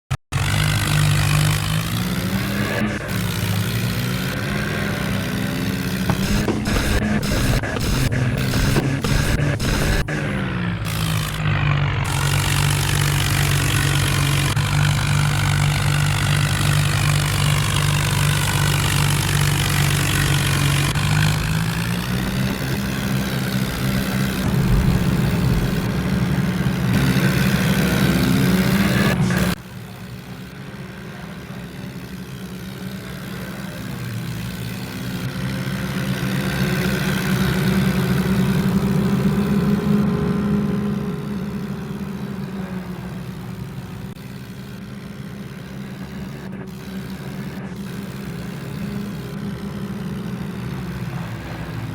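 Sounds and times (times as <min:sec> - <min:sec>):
tractor diesel engine running: 0:00.3 - 0:51.9.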